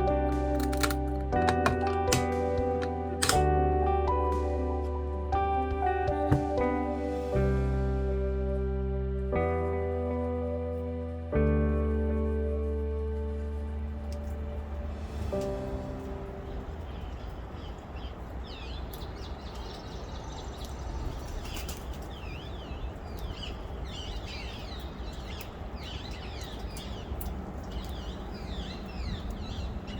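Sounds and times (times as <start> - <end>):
music: 0.0 - 17.1
low outdoor rumble: 0.0 - 18.8
small birds chirping: 16.0 - 29.9.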